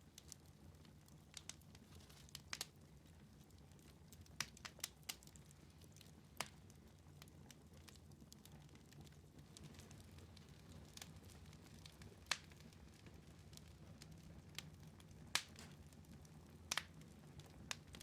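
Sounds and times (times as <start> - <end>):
wood fire crackling: 0.0 - 18.0
sharp fire pops: 15.3 - 15.8.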